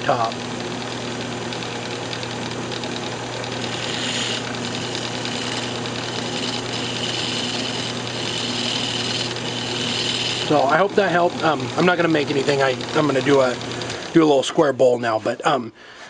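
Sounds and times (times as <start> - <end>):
lathe motor humming: 0.0 - 15.6
turning tool scraping hiss: 3.6 - 10.7.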